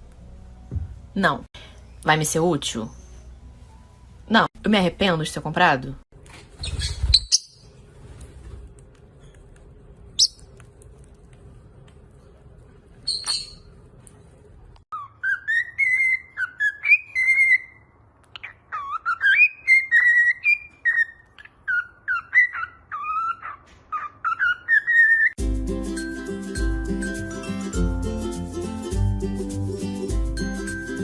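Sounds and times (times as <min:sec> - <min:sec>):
high bird chirp: 0:10.1 - 0:10.5, 0:13.0 - 0:13.7, 0:14.9 - 0:25.4
parrot whistling a tune: 0:14.9 - 0:23.4, 0:24.0 - 0:25.4.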